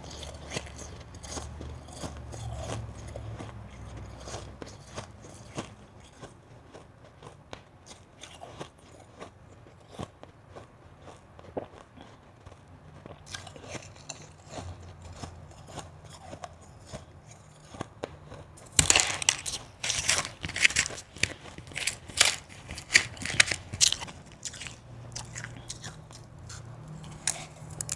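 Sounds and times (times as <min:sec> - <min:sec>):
ice being crunched by chewing: 0:00.0 - 0:27.9.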